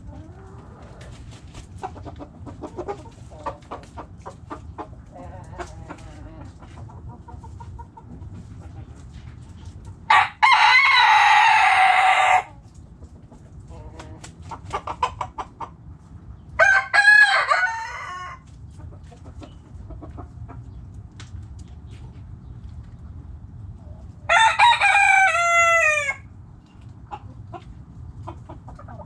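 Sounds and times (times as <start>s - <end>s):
hen clucking: 0.0s - 16.6s, 17.3s - 21.0s, 23.0s - 29.0s
rooster crowing: 10.1s - 12.6s, 16.6s - 18.4s, 24.3s - 26.3s.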